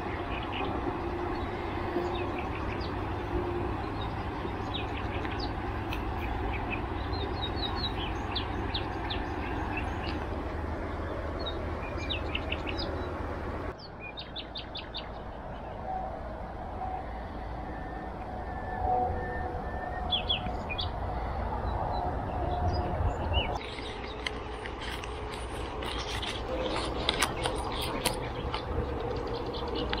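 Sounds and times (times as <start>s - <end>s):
songbirds chirping: 0.0s - 30.0s.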